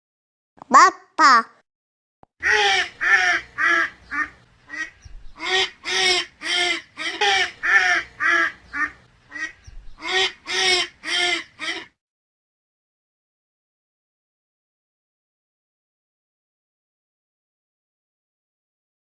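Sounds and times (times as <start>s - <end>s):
duck quacking: 0.7s - 1.5s, 2.4s - 12.0s.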